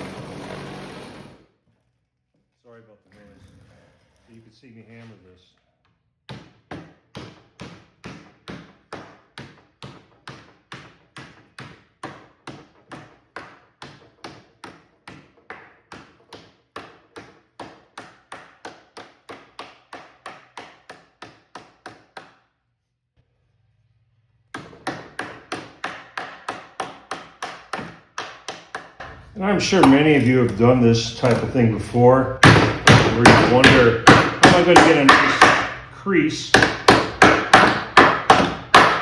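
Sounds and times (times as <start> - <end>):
hammer blows on sheet metal: 25.2 - 39.0.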